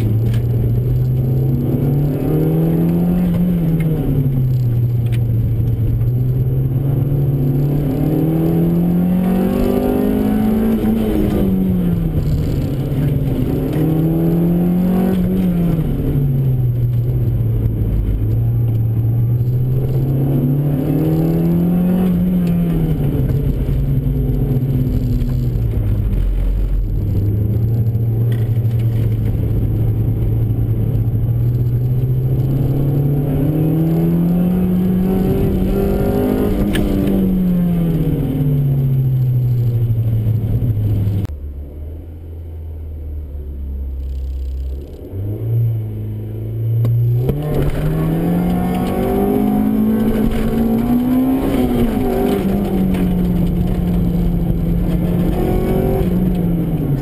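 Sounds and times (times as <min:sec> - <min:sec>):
car engine revving from inside cabin: 0:06.1 - 0:17.7, 0:18.5 - 0:25.8, 0:29.3 - 0:39.0, 0:43.2 - 0:57.0.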